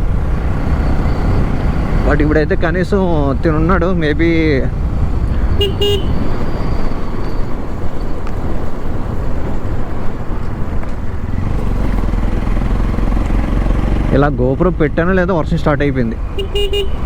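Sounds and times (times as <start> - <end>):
motorcycle engine running: 4.7 - 6.6, 11.1 - 15.2, 16.2 - 17.0
short tone: 5.5 - 7.4.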